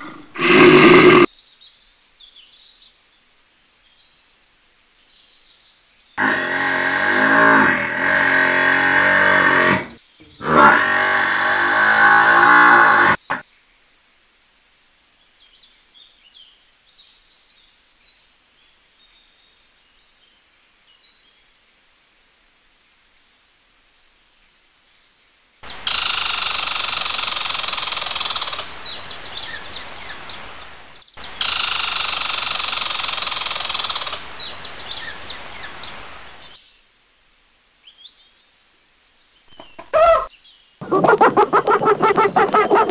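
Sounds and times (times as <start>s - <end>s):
squirrel chattering alarm call: 25.6s - 30.5s, 31.2s - 36.0s, 39.5s - 42.9s
faint bird chirps: 39.4s - 42.9s.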